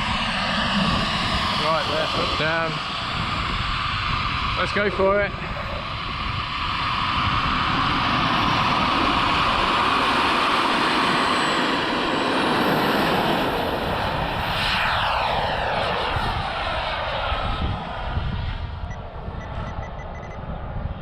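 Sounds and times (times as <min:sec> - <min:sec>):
model jet turbine whine: 0:00.0 - 0:21.0.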